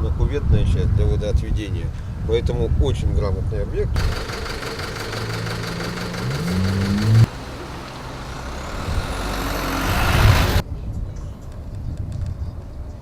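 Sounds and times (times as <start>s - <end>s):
vehicle engine accelerating: 4.0s - 10.6s
vehicle passing: 4.0s - 10.6s.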